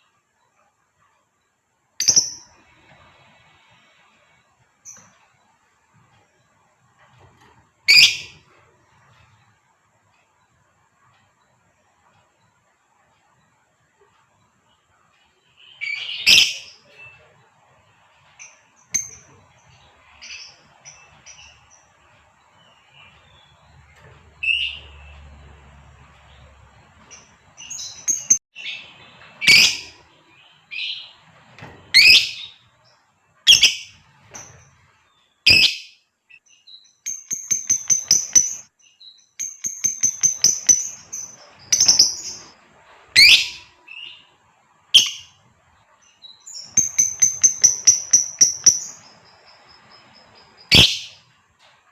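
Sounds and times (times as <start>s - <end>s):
soft bird chirps: 0.0s - 51.9s
high ticking bird chips: 27.1s - 28.8s, 36.6s - 42.6s, 46.4s - 51.2s.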